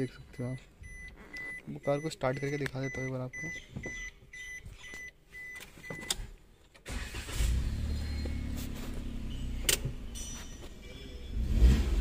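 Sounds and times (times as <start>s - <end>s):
car warning chime beeps: 0.0s - 6.2s, 7.7s - 12.0s
car engine cranking and starting: 6.0s - 12.0s
car engine idling: 6.9s - 12.0s.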